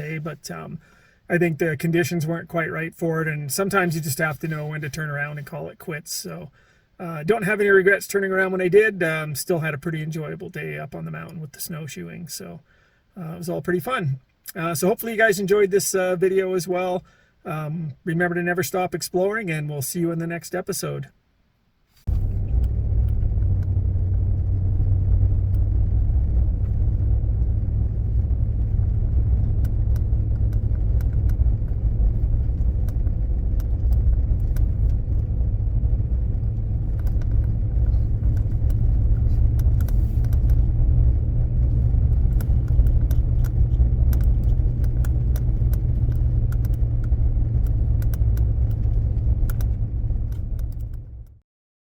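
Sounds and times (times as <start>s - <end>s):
truck engine rumbling: 22.1s - 51.4s
light rattles and ticks: 27.4s - 51.4s.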